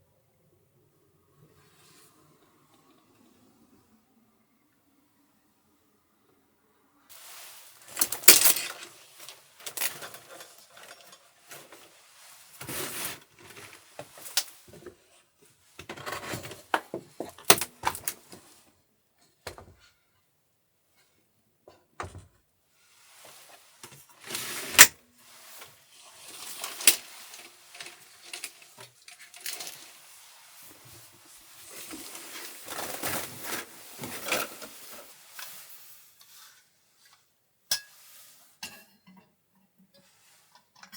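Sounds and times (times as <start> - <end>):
small hard objects clattering: 7.1 - 14.6, 24.2 - 30.2
rustling: 7.1 - 14.7, 22.8 - 37.3.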